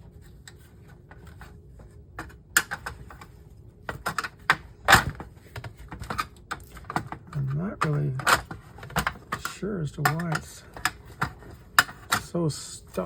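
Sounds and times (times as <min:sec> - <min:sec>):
plastic housing clicking and knocking: 0:03.9 - 0:12.3.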